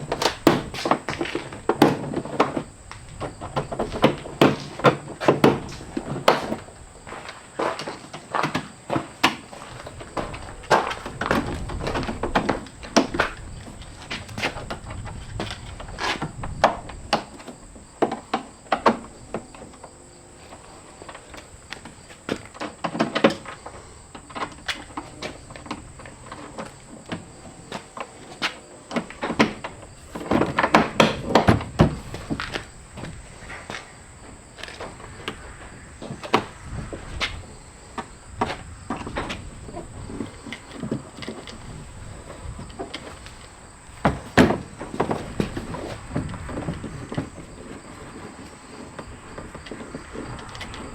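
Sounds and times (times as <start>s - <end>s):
knocks and clatters: 21.3s - 50.9s.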